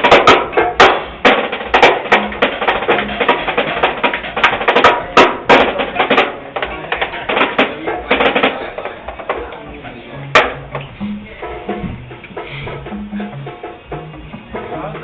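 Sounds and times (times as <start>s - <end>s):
live band playing: 0.0s - 9.5s, 10.2s - 15.0s
drum kit hits: 0.0s - 15.0s.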